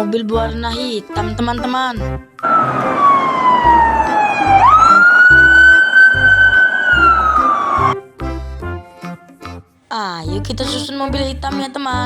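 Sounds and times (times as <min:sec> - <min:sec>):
background music with steady beat: 0:00.0 - 0:12.0
siren wailing: 0:02.4 - 0:08.0.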